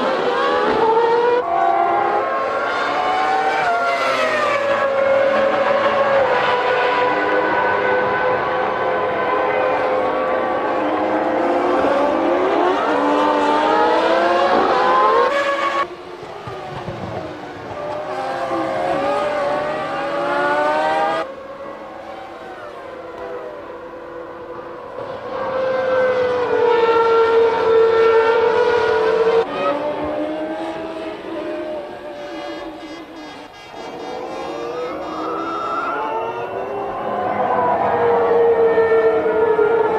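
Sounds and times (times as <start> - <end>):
racing car engine high revs: 0.0 - 15.9, 17.8 - 21.3
racing car engines at high revs: 0.0 - 39.9.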